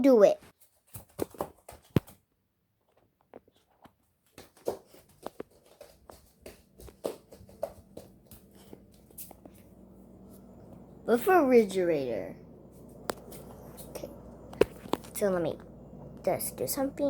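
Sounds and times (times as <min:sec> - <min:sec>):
faint footsteps: 0:02.9 - 0:11.8, 0:12.4 - 0:16.6
low steady hum: 0:06.6 - 0:17.0.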